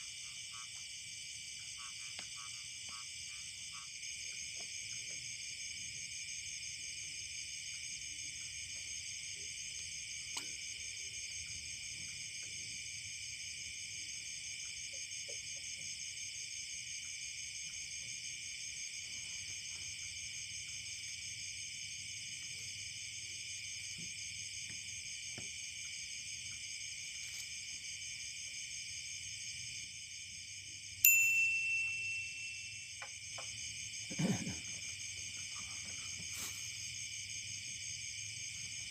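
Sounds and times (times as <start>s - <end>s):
insect chorus buzzing: 0.0s - 38.9s
bright ding: 31.0s - 33.1s.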